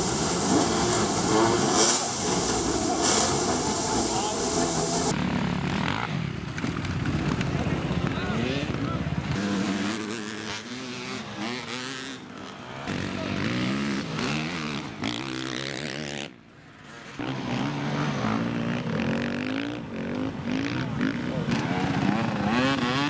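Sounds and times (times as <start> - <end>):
dirt bike engines revving: 0.0 - 6.2, 16.8 - 23.0.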